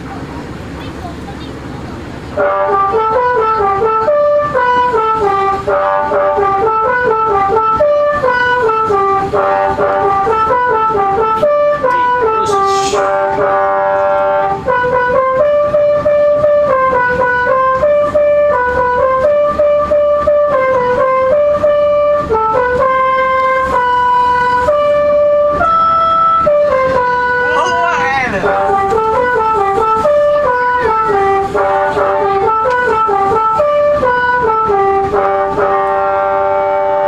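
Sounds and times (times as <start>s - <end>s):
multi-tone air horns playing tune: 2.4s - 37.0s
short air hiss: 12.4s - 13.2s.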